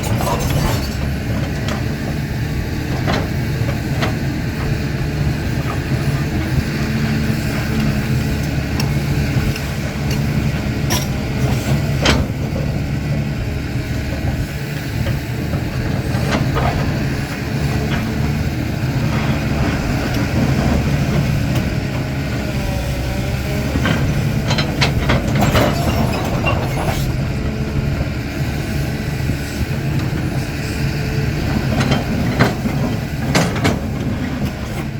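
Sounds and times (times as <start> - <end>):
excavator diesel engine: 0.0 - 34.9
metallic clanks and knocks: 31.6 - 34.4.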